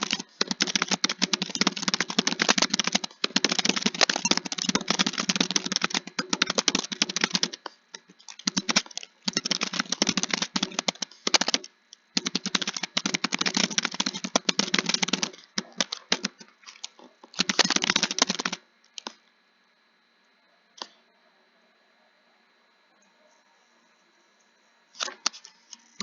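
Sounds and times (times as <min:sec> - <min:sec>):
computer keyboard typing: 0:00.0 - 0:19.2.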